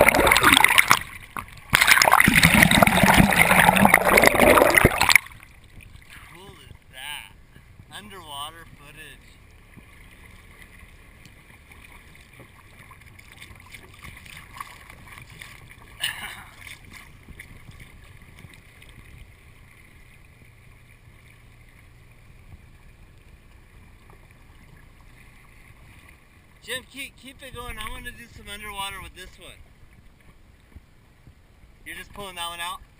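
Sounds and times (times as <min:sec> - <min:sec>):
water noise: 0:00.0 - 0:32.9
wind noise: 0:12.0 - 0:19.4.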